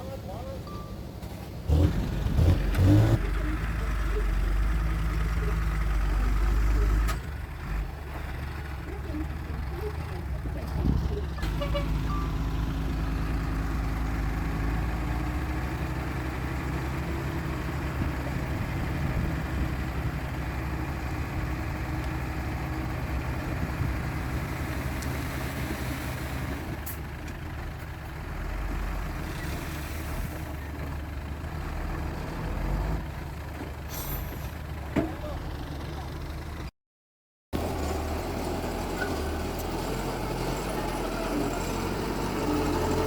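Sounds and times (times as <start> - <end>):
heavy diesel engine running: 1.7 - 28.9.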